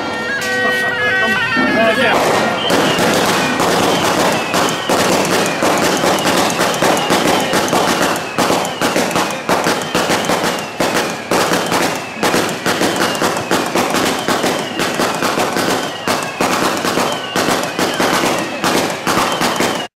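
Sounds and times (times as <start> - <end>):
sliding high tone: 0.0 - 13.2
firecrackers crackling: 1.4 - 19.9.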